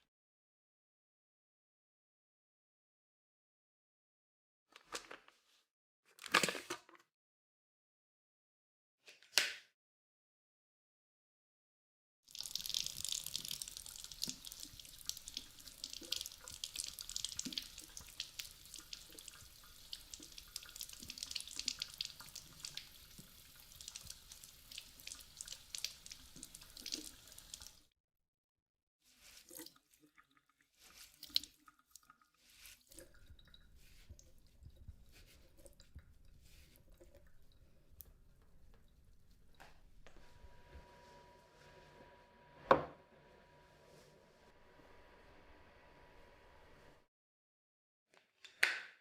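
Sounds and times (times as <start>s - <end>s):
small drips and clicks: 12.3s - 27.9s, 29.2s - 40.2s
splashing running water: 12.3s - 27.9s, 29.2s - 37.5s.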